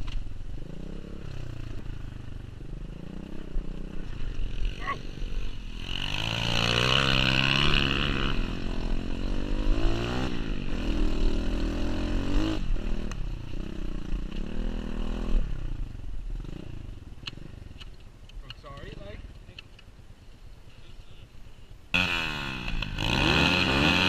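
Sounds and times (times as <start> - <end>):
small motorbike engine revving: 2.7 - 17.6, 21.9 - 24.0.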